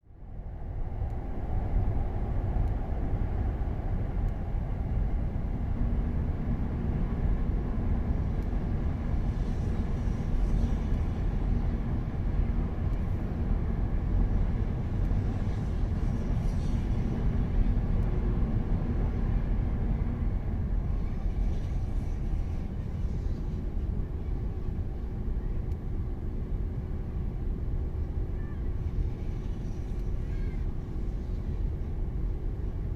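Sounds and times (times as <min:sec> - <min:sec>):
high-speed train rumbling: 0:00.0 - 0:32.9.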